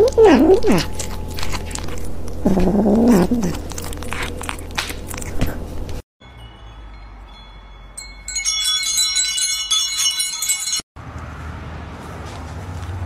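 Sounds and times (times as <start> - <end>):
metal wind chime ringing: 6.2 - 10.9.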